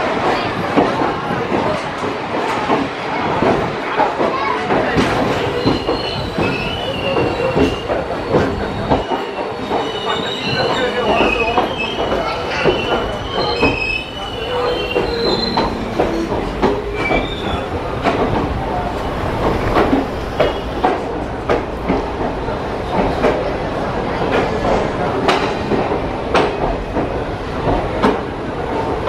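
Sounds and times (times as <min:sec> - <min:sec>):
high-pitched wheel squeals: 0:12.6 - 0:17.7.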